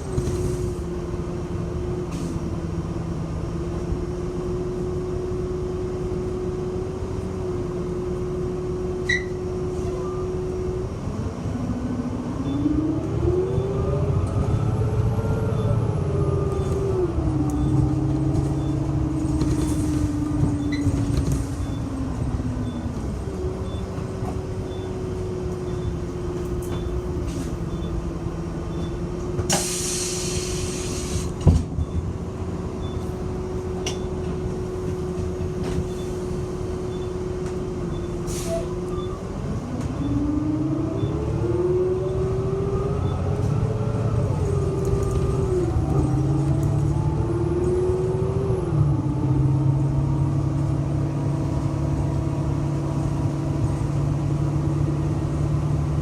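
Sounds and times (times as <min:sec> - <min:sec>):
bus drive whine: 0:00.0 - 0:56.0
compressed air hiss: 0:29.5 - 0:31.3.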